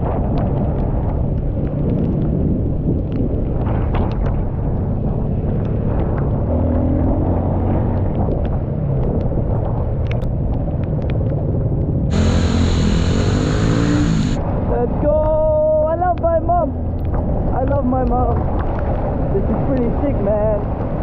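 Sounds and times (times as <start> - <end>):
wind rumble on microphone: 0.0 - 21.0
dirt bike engine running: 12.1 - 14.4
light ticks: 19.7 - 19.9.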